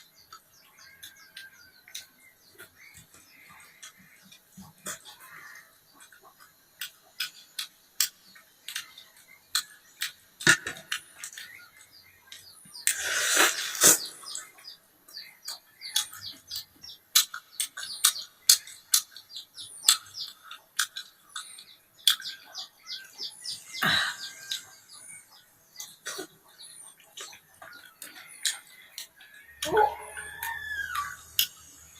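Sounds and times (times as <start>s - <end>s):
wet chewing and smacking: 0.1s - 13.0s, 14.3s - 23.5s, 24.4s - 31.9s.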